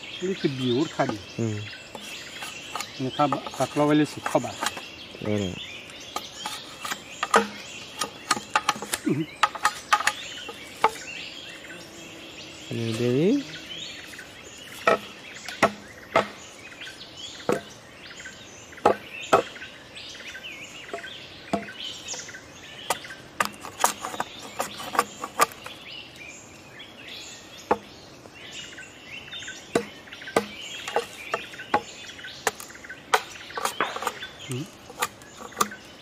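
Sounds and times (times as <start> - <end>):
small birds chirping: 0.0 - 36.0
sharp clicks and knocks: 6.1 - 11.0, 29.7 - 35.8.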